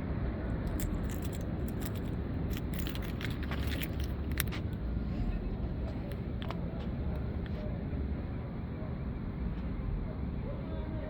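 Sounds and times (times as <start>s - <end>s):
steady low rumble: 0.0s - 10.5s
light clicks and jingling: 0.5s - 4.8s.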